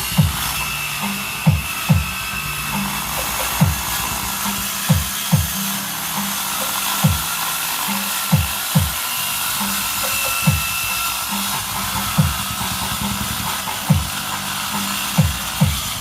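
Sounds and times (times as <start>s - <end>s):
steady bass line: 0.0s - 9.0s.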